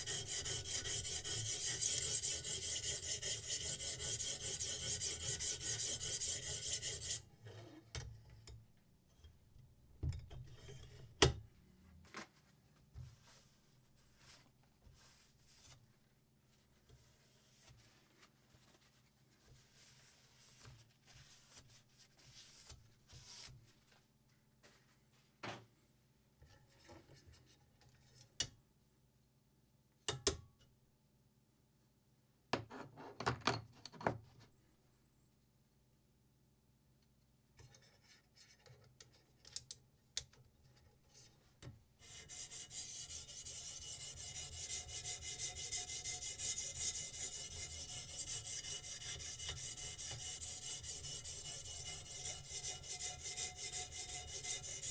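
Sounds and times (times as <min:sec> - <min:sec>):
knife grinding on sharpening stone: 0:00.0 - 0:07.2, 0:42.7 - 0:54.9.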